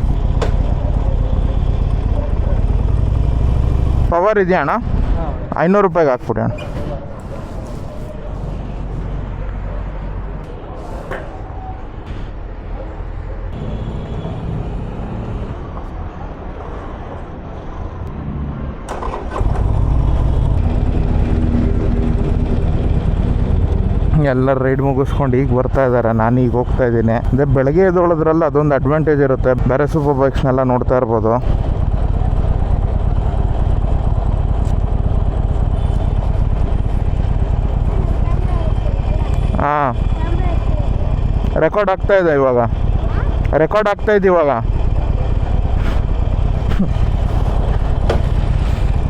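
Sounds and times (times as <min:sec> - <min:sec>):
motorcycle engine starting and idling: 0:00.0 - 0:04.6, 0:18.9 - 0:25.6, 0:31.4 - 0:49.0
low rumble of engines and traffic: 0:00.0 - 0:49.0.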